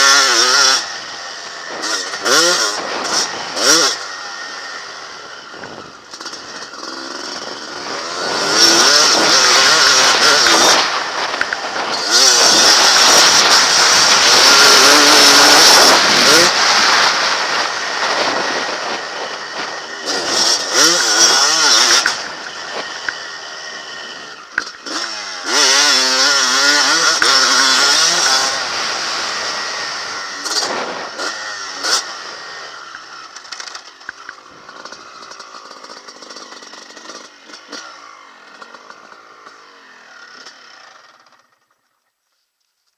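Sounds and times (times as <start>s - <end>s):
motocross bike engine revving: 0.0s - 42.0s.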